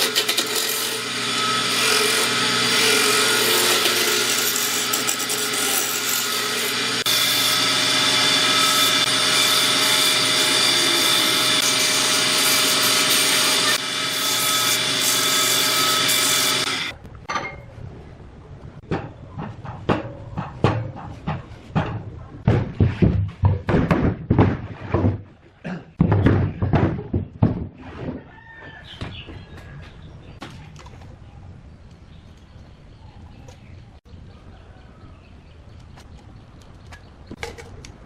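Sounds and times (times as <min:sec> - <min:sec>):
woodworking power tool whine: 0:00.0 - 0:17.0
hand tools knocking on wood: 0:18.8 - 0:25.2, 0:26.0 - 0:27.8.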